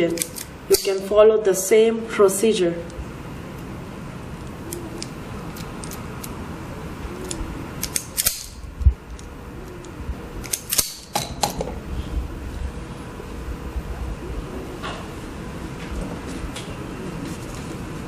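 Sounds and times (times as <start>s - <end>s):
hand tools clicking and snipping: 0.0s - 1.1s, 4.7s - 6.3s, 7.2s - 11.6s
steady low hum: 0.0s - 18.0s.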